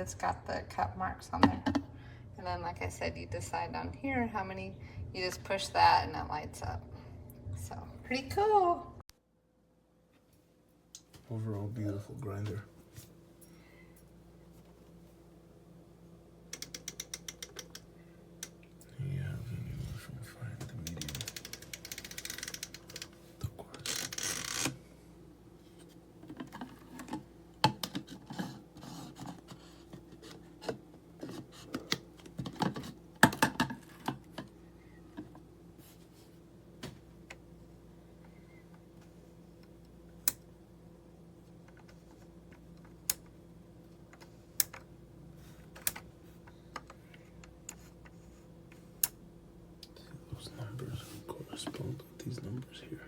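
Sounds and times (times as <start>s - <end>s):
faint steady hum: 0.0s - 53.0s
rustling and scraping: 27.9s - 33.0s.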